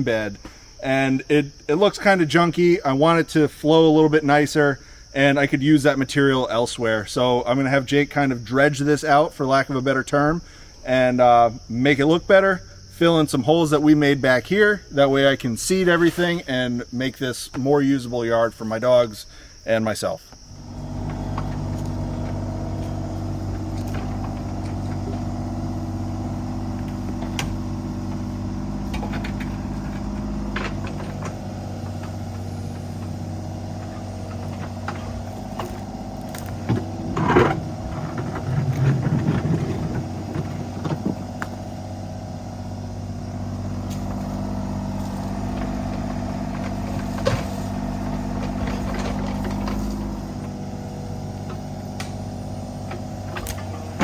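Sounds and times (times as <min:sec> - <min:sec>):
diesel engine running: 0:20.5 - 0:54.0
bucket scraping in stones: 0:32.4 - 0:41.1.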